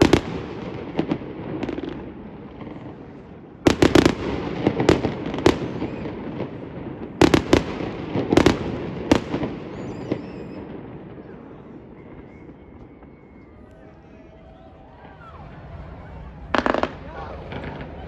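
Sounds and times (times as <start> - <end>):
fireworks exploding with echo: 0.0 - 18.0.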